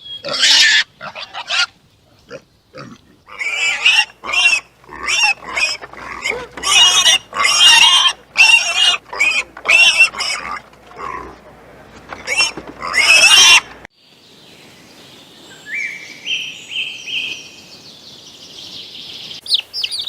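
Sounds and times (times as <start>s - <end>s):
pig squealing: 0.1s - 11.4s, 12.1s - 13.8s.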